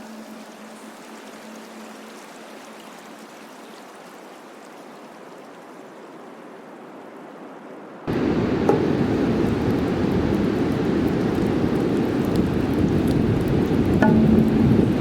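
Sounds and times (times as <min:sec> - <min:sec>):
rushing water: 0:00.0 - 0:15.0
loud rushing with deep rumble: 0:08.1 - 0:15.0.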